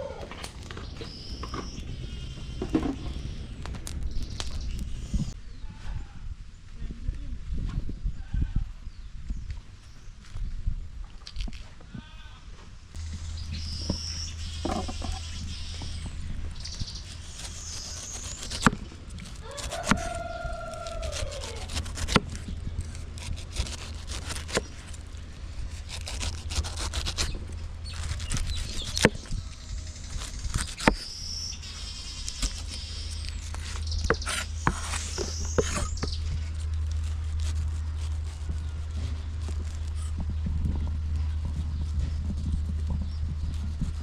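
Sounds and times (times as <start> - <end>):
steady low hum: 12.8 - 44.0
high chirping: 13.0 - 18.7.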